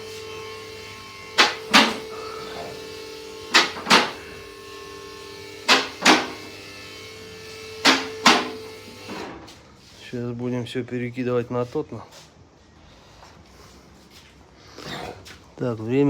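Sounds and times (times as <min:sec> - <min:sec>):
steady machine hum: 0:00.0 - 0:08.9.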